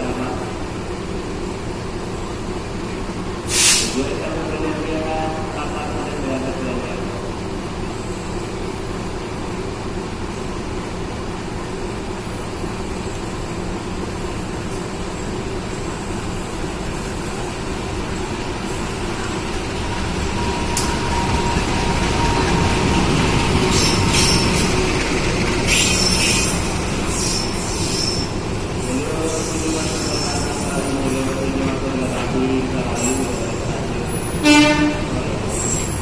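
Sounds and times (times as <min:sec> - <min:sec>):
train rumbling on tracks: 0:00.0 - 0:36.0
train wheels squealing: 0:11.8 - 0:36.0.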